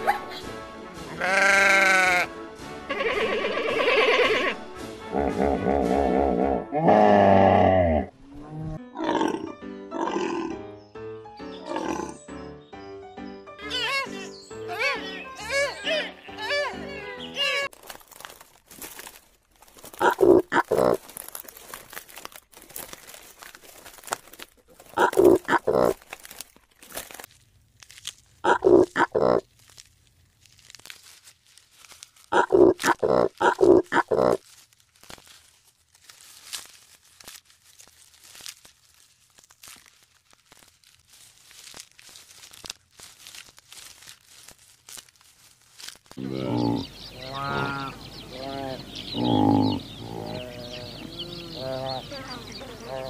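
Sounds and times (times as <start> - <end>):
animal grunting calls: 5.1 - 10.7, 11.6 - 12.3, 20.0 - 21.0, 25.0 - 26.0, 28.4 - 29.4, 32.3 - 34.4, 46.2 - 52.1
soft crackling and crunching: 17.6 - 50.7.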